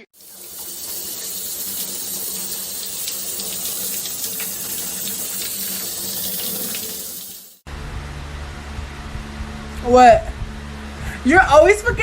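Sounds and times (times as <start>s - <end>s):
tap water running into sink: 0.2s - 7.6s.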